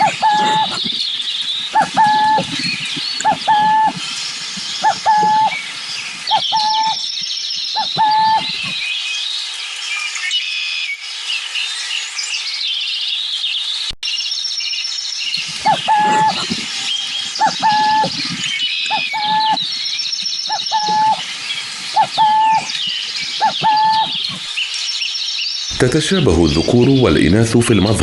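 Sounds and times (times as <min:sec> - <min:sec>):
owl two-note coo: 0:00.0 - 0:01.0, 0:01.7 - 0:04.1, 0:04.8 - 0:05.6, 0:06.3 - 0:07.0, 0:07.8 - 0:08.8, 0:15.6 - 0:16.7, 0:17.4 - 0:19.7, 0:20.5 - 0:21.3, 0:21.9 - 0:24.4
birds chattering: 0:00.0 - 0:09.4, 0:14.7 - 0:28.0.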